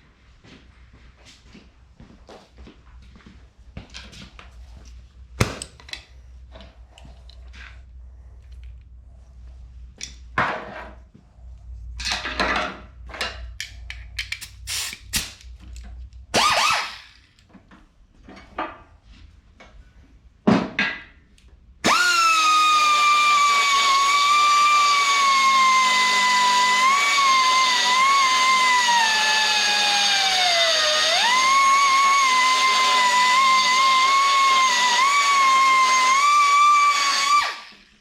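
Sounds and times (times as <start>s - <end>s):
angle grinder whining: 16.4s - 17.2s, 21.8s - 38.0s.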